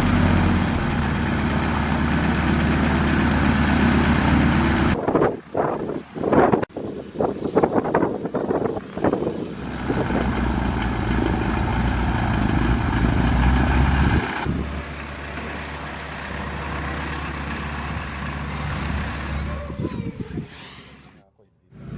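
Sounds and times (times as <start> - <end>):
radial aircraft engine starting: 0.0 - 5.0, 8.5 - 19.7.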